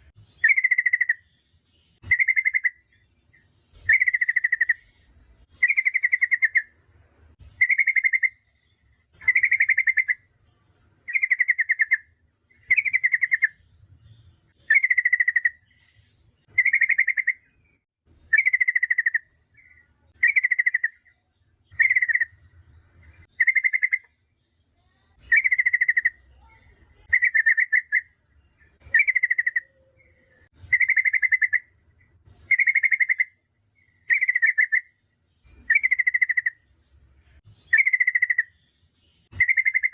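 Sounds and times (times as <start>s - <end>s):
bird chattering calls: 0.0s - 1.3s, 2.0s - 2.9s, 3.8s - 6.8s, 7.6s - 8.4s, 9.1s - 10.3s, 11.1s - 13.6s, 14.6s - 17.5s, 18.3s - 22.4s, 23.1s - 24.1s, 24.9s - 28.2s, 28.8s - 31.8s, 32.4s - 36.6s, 37.6s - 38.6s, 39.3s - 39.9s.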